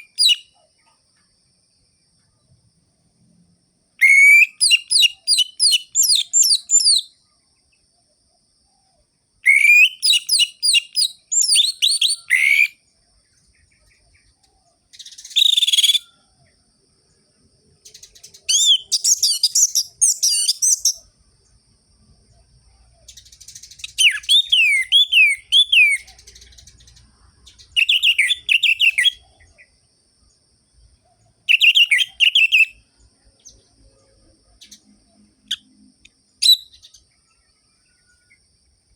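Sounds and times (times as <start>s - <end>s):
thrush singing whistled notes: 0.0s - 0.6s, 4.0s - 7.3s, 9.4s - 12.8s, 14.9s - 16.3s, 17.9s - 21.1s, 23.0s - 29.7s, 31.4s - 37.0s
harsh bird call: 4.0s - 7.0s, 9.4s - 12.8s, 23.8s - 26.1s.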